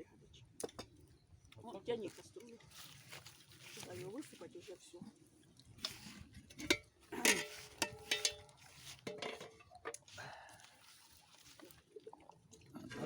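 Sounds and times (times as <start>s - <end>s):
metal pot and utensils clanking: 5.8s - 10.1s.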